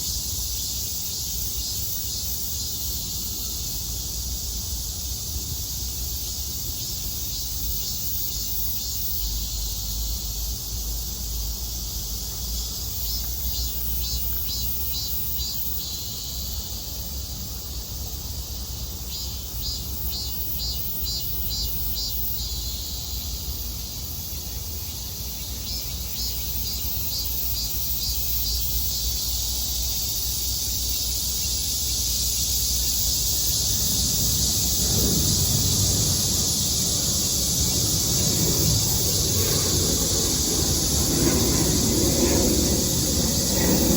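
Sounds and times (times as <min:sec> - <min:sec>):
cicadas buzzing: 0:00.0 - 0:43.9
rapid pulsing insect calls: 0:00.0 - 0:43.9
low steady rumble: 0:33.0 - 0:43.9.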